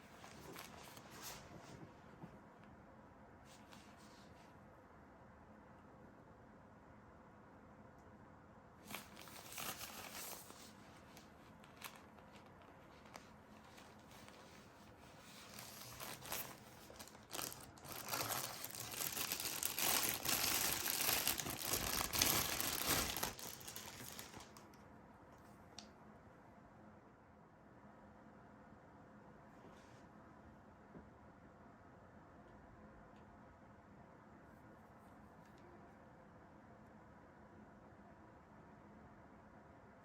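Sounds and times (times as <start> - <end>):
packaging crinkling and tearing: 8.8 - 24.7.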